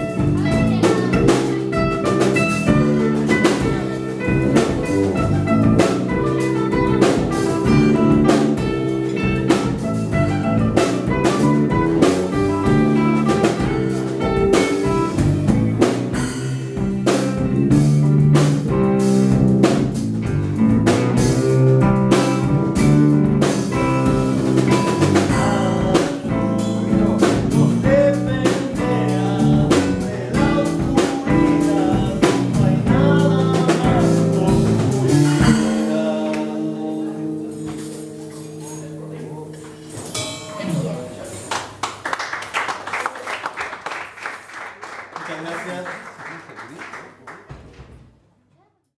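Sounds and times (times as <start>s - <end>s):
drum kit beat: 0.0s - 42.7s
band music: 0.0s - 44.2s.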